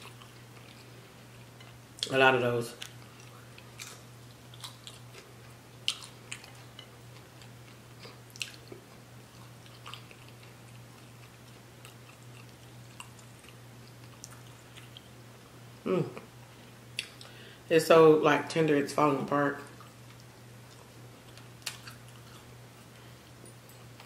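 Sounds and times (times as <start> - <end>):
faint low hum: 0.0 - 24.0
chewing with wet mouth clicks: 2.8 - 15.1, 16.9 - 17.3.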